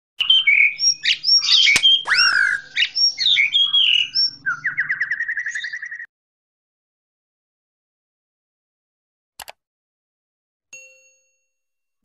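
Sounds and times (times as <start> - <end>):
bird chirps and whistles: 0.2 - 6.1
bird trill: 0.2 - 6.1
sharp click: 1.7 - 2.2, 9.4 - 9.6.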